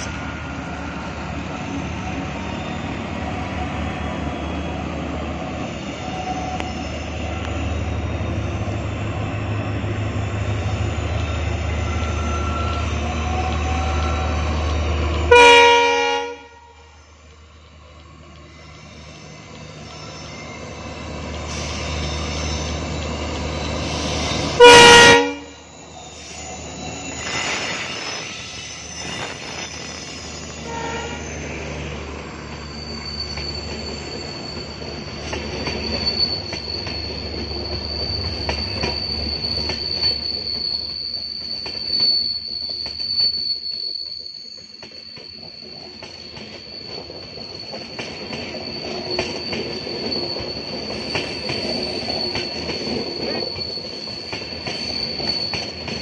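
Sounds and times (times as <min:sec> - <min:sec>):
diesel locomotive engine rumble: 0:00.0 - 0:56.0
train wheel squeal: 0:00.0 - 0:56.0
train horn blast: 0:15.3 - 0:16.9, 0:24.6 - 0:25.6, 0:30.6 - 0:31.3.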